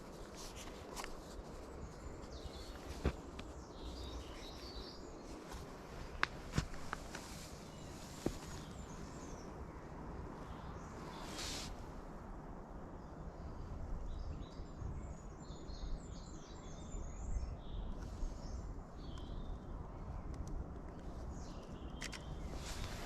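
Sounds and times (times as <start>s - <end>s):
songbirds chirping and singing: 0.0s - 11.7s
low outdoor rumble: 0.0s - 15.4s.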